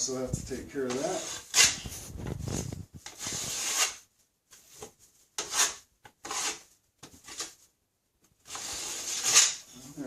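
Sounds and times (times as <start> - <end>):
drywall knife scraping: 0.8 - 2.1, 3.0 - 4.1, 4.8 - 7.6, 8.4 - 9.9.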